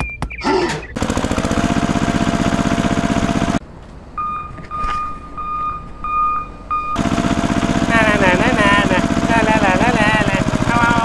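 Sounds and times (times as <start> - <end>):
tractor engine chugging: 1.0 - 3.6, 6.9 - 11.0.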